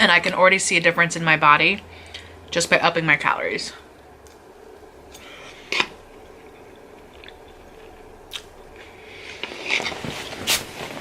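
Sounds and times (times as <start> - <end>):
person chewing food: 4.0 - 10.9.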